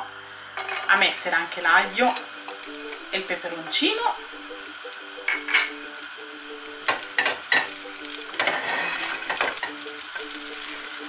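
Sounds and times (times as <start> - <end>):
garlic sizzling in oil: 0.0 - 11.0
spatula scraping a pan: 0.6 - 1.1, 6.9 - 9.8.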